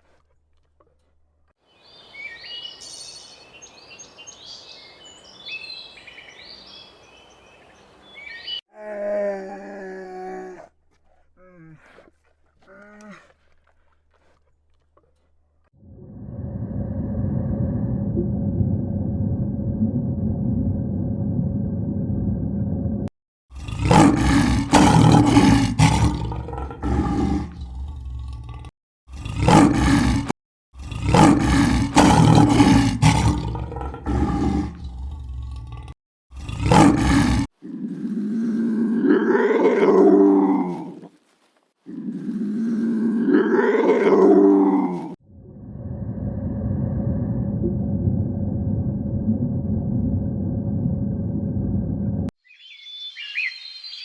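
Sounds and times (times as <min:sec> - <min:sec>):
low rumble: 0:15.9 - 0:23.1, 0:45.4 - 0:52.3.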